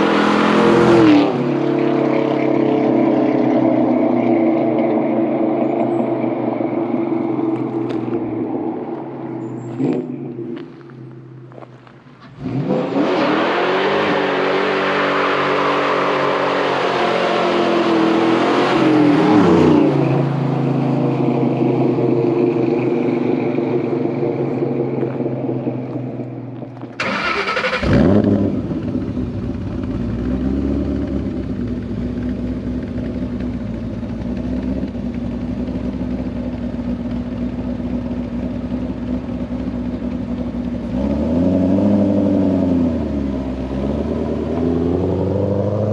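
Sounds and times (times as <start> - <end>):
car engine accelerating past: 26.8 - 31.3, 40.9 - 45.9.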